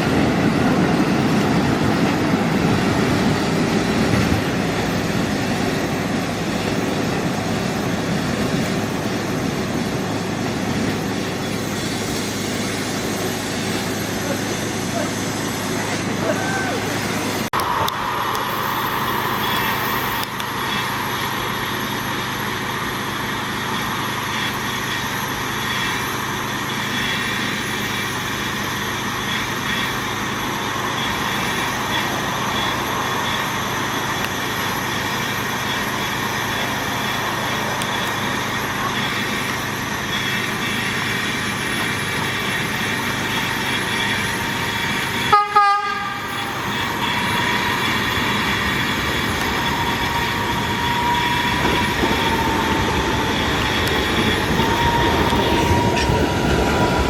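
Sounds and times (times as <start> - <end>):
electric train running: 0.0 - 57.0
train horn toot: 45.2 - 47.8.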